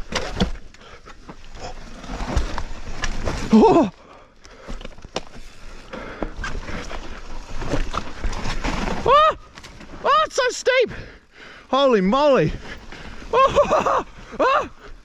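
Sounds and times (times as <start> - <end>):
bike tyre rumble on dirt: 0.0 - 10.1
person shouting: 10.0 - 10.9.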